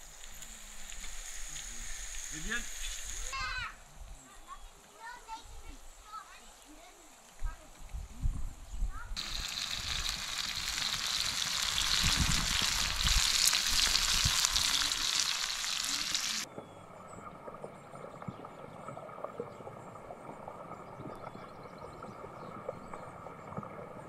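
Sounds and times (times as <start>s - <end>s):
food sizzling in a steel tray: 0.0s - 3.5s, 9.2s - 16.5s
popping: 9.2s - 16.5s.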